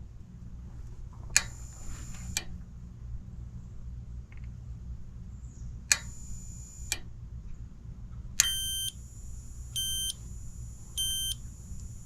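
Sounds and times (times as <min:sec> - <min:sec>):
electronic beeping: 0:08.4 - 0:08.9, 0:09.8 - 0:10.2, 0:11.0 - 0:11.4.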